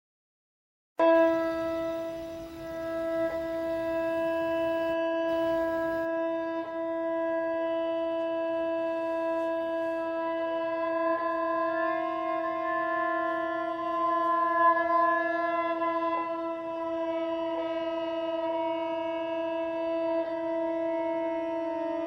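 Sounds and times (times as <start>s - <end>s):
long held note rich in overtones: 1.0s - 22.0s.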